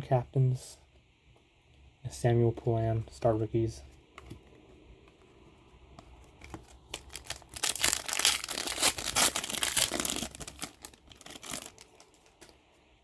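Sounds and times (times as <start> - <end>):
wrapper tearing and crinkling: 6.6 - 12.6.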